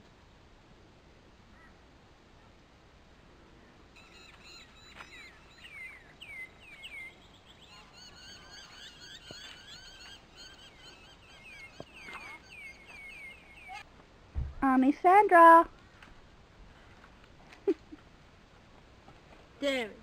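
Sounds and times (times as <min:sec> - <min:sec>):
birds chirping: 0:03.6 - 0:14.0.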